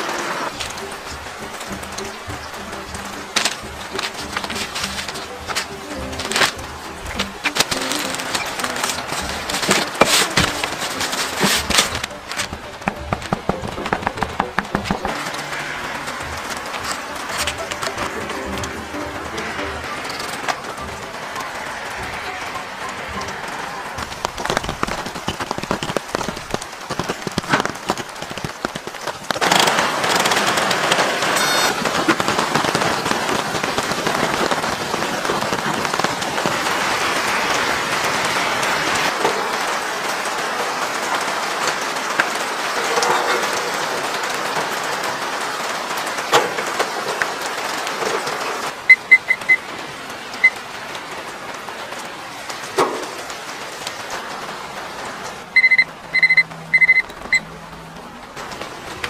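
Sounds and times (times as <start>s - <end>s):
steady rain hissing: 0.0s - 59.0s
digital kitchen timer beeps: 31.4s - 31.8s, 48.9s - 49.6s, 55.6s - 57.4s.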